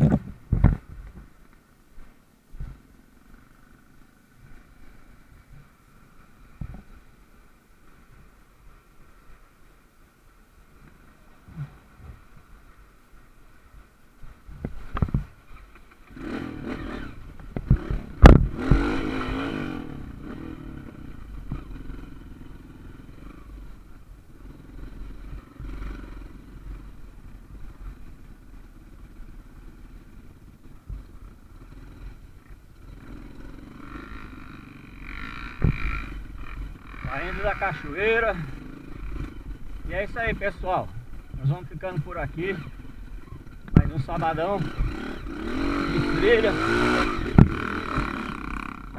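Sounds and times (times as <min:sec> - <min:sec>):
small motorcycle engine revving: 0:14.7 - 0:48.9.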